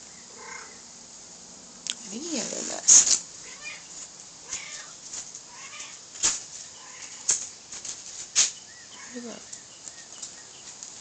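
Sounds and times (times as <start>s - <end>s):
small bird chirping faintly: 0.0s - 1.0s, 6.6s - 7.3s, 8.3s - 11.0s.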